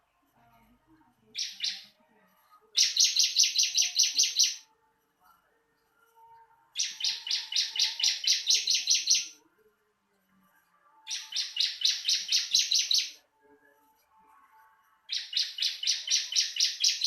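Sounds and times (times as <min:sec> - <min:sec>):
bird chirping high notes: 0:06.8 - 0:09.3, 0:11.1 - 0:13.2.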